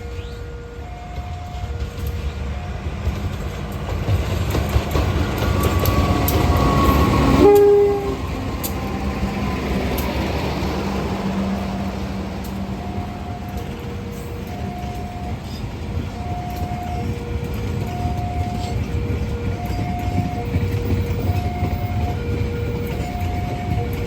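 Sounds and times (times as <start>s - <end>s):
train rumbling past: 0.0s - 24.0s
train horn blast: 5.6s - 9.9s.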